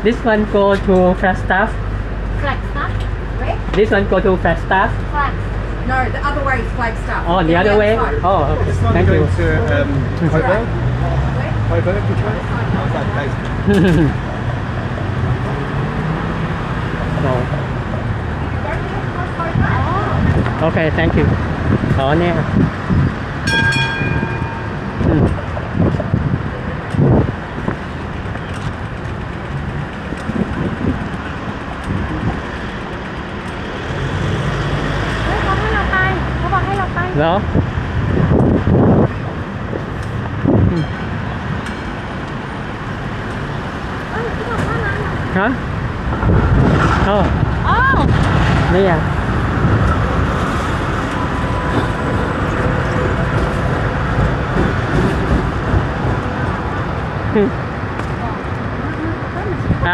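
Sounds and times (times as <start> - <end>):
passing traffic: 0.0 - 59.9
train rumbling past: 0.0 - 59.9
wind on microphone: 18.6 - 28.8, 29.7 - 32.6, 36.0 - 42.3, 43.9 - 59.9.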